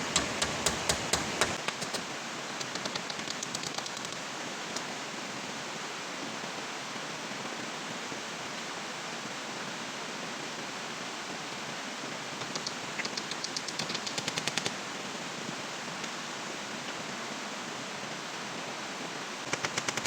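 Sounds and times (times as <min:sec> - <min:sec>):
heavy rain hissing: 0:00.0 - 0:20.0
light clicks: 0:12.4 - 0:14.7.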